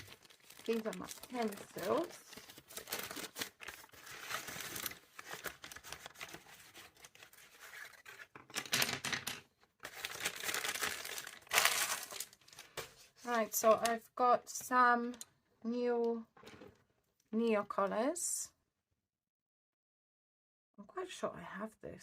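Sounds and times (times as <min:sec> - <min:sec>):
packaging crinkling and tearing: 0:00.0 - 0:08.8, 0:09.8 - 0:13.0.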